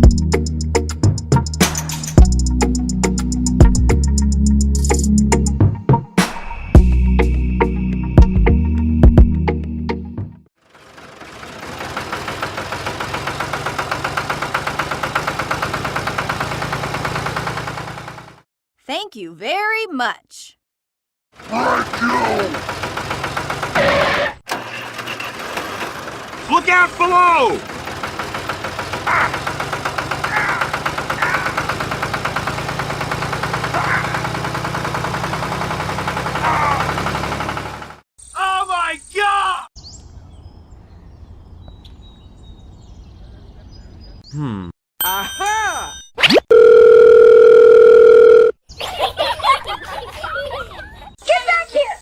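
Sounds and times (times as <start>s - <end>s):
tractor engine chugging: 10.6s - 18.4s, 21.4s - 38.0s
voice fragments: 21.5s - 22.6s.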